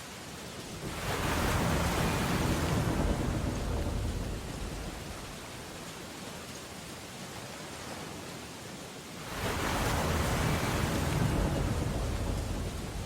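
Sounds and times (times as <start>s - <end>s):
rain hiss: 0.0s - 13.0s
ocean wave breaking: 0.8s - 5.2s, 9.2s - 13.0s.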